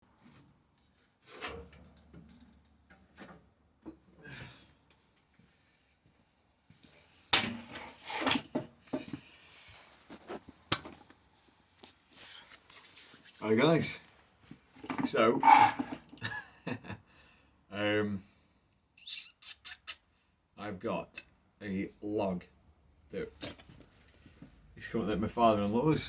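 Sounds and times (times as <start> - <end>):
objects rubbing and clunking: 7.4 - 11.1, 14.8 - 16.2.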